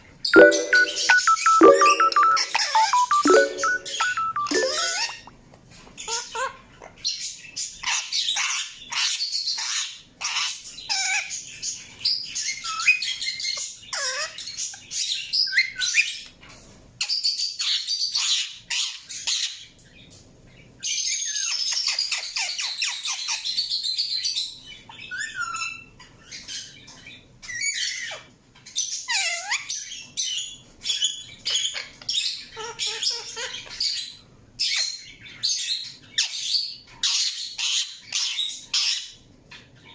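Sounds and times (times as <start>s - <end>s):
falling whistled notes: 0.4s - 5.1s.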